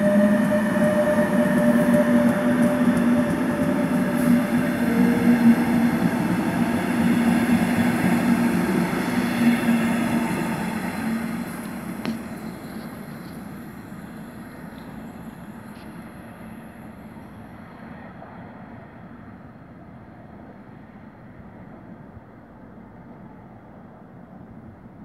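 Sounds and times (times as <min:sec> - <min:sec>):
electric locomotive motor hum: 0:00.0 - 0:16.0
wheels rumbling on rails: 0:00.0 - 0:16.2.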